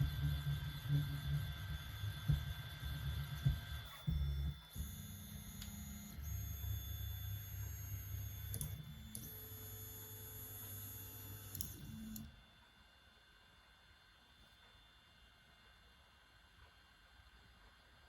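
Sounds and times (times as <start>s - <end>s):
small motor clicks: 7.5s - 12.3s.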